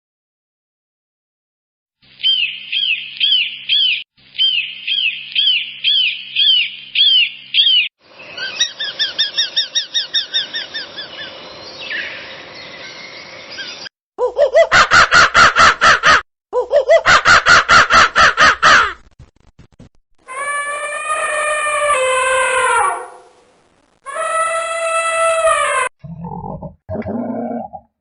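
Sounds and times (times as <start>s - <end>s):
bird chirps: 2.1s - 13.9s
harsh bird calls: 2.2s - 16.2s.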